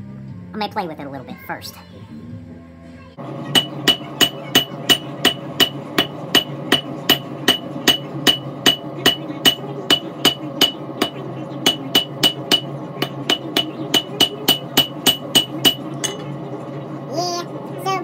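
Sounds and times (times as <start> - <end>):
hammer striking steel on anvil: 3.5 - 16.3.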